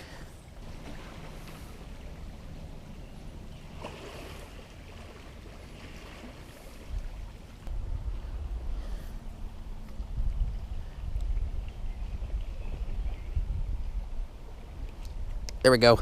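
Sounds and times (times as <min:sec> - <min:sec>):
river water flowing: 0:00.0 - 0:12.9
wind gusting on microphone: 0:06.2 - 0:16.0.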